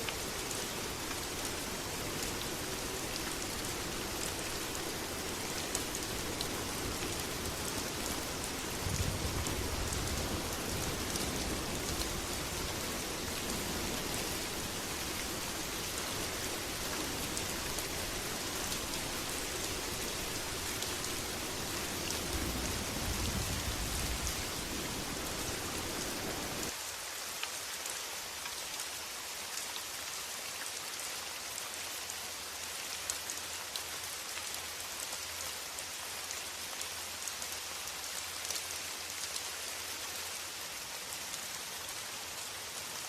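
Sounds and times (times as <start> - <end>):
heavy rain: 0.0 - 29.6.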